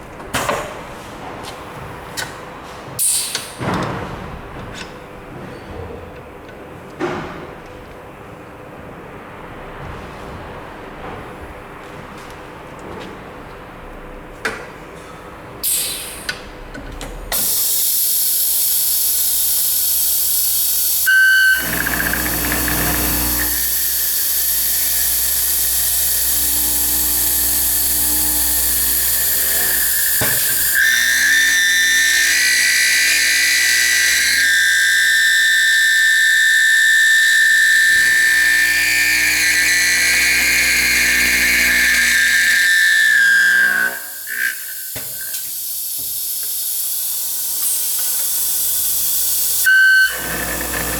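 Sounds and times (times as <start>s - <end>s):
router milling steel: 17.4s - 50.9s.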